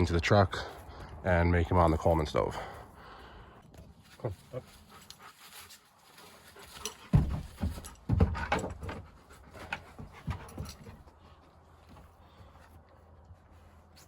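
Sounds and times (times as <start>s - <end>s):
dog panting: 4.7s - 5.8s
light knocks and scrabbling: 6.7s - 12.6s.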